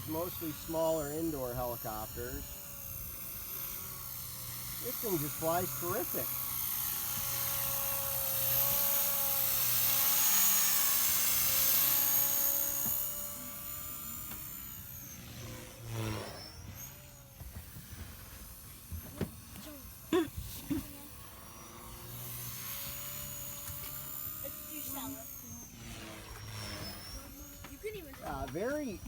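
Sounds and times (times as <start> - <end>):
rc helicopter rotor whining: 0.0 - 29.0.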